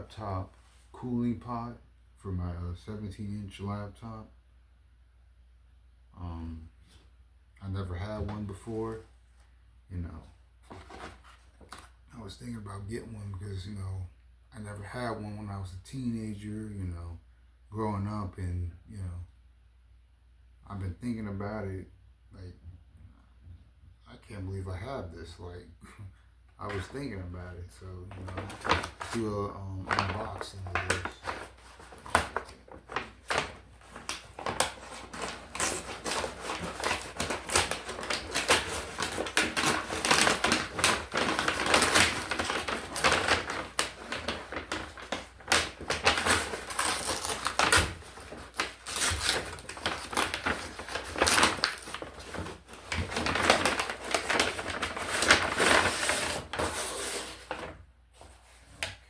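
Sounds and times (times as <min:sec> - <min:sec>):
cardboard box crackling and rustling: 0:28.2 - 0:29.3, 0:29.9 - 0:57.7.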